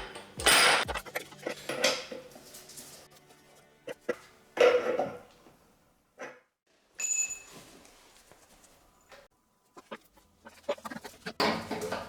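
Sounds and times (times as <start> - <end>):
parts clattering: 11.0 - 12.0.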